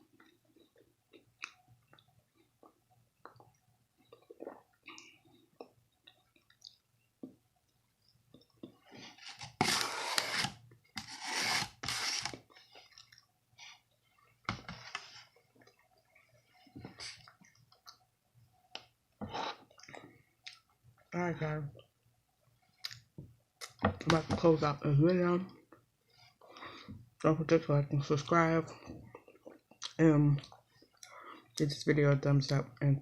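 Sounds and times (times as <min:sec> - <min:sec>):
chewing and mouth clicks: 0:00.2 - 0:06.8.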